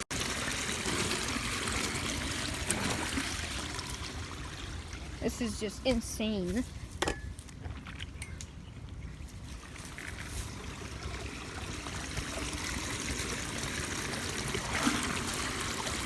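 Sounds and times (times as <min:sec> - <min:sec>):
floodwater running and trickling: 0:00.0 - 0:06.6, 0:07.4 - 0:16.0.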